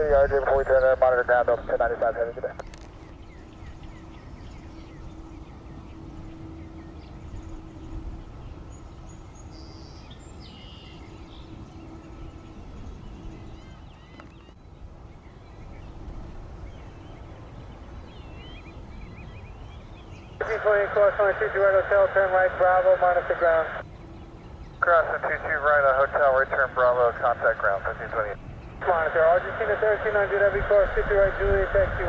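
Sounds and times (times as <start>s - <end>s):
low outdoor rumble: 0.0s - 8.8s, 20.4s - 32.0s
small birds chirping: 0.0s - 30.8s
faint steady hum: 0.0s - 32.0s.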